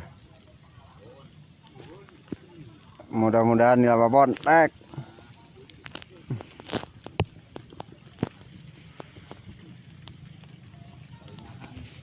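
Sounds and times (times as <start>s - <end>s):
insects chirring: 0.0s - 12.0s
pulsing insect call: 0.0s - 12.0s.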